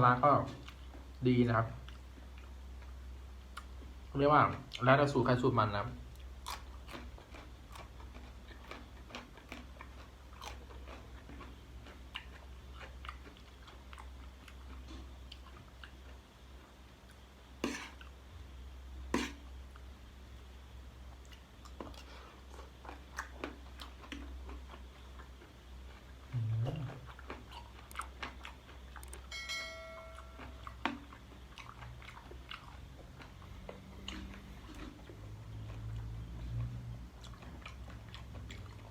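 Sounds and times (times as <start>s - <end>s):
person chewing and crunching: 1.8s - 4.0s, 6.1s - 18.2s, 21.1s - 29.4s, 30.0s - 38.9s
ringing clink: 29.3s - 30.6s.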